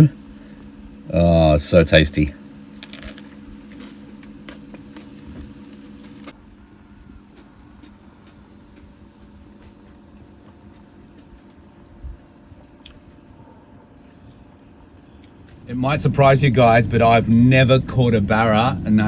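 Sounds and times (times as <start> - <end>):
faint insect chirping: 0.0 - 19.0
steady low hum: 0.0 - 19.0.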